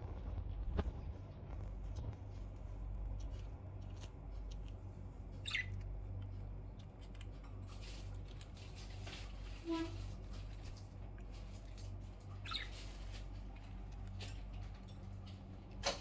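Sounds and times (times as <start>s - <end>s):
steady low hum: 0.0s - 16.0s
budgerigar chirp: 5.4s - 5.8s, 12.4s - 12.8s
soft rustle: 7.1s - 15.4s.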